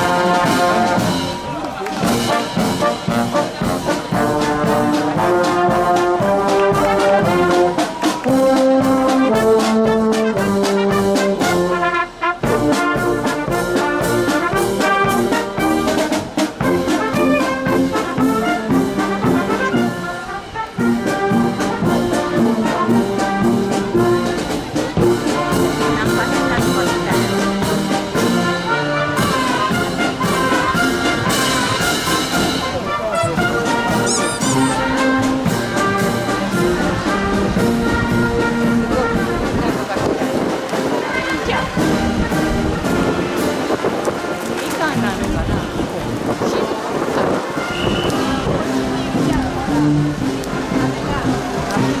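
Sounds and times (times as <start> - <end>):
steady drum beat: 0.0 - 19.9, 20.8 - 28.7, 29.3 - 40.8
brass melody: 0.0 - 45.9, 47.2 - 51.9.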